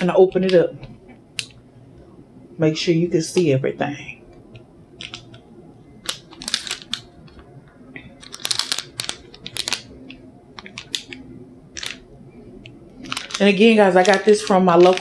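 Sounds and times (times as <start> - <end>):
plastic wrapper crinkling: 5.0 - 5.4, 6.0 - 12.0, 13.0 - 15.0.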